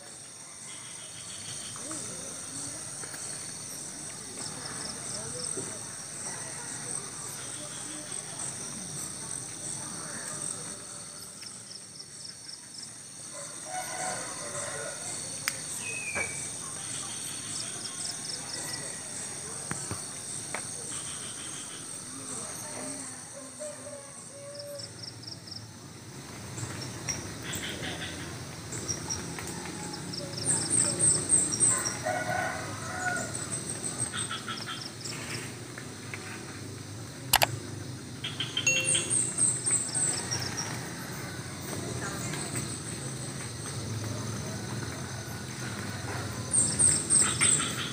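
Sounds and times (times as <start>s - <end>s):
crickets and insects chirring: 0.0s - 47.9s
rooster crowing: 13.4s - 15.3s, 31.7s - 33.4s
sharp click: 37.3s - 37.5s
bird chirps: 38.3s - 39.8s.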